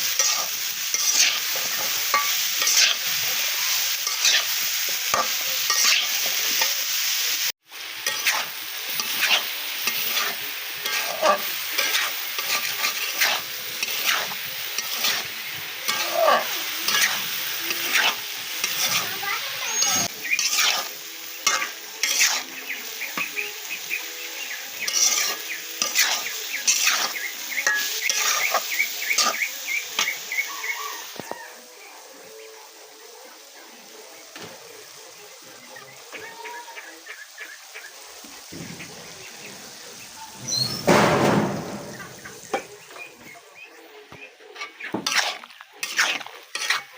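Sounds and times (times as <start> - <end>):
spatula scraping a pan: 0.0 - 6.8, 8.0 - 22.5, 24.8 - 30.2, 44.5 - 46.9
food sizzling in hot oil: 0.0 - 46.9.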